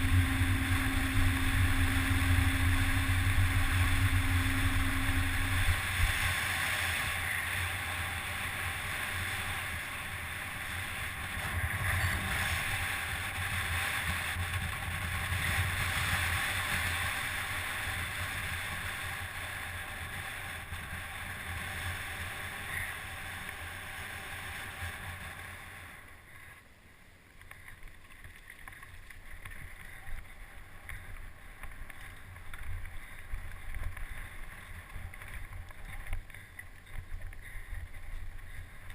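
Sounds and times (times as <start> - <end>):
steady low rumble: 0.0 - 24.2
wind on microphone: 0.0 - 25.5.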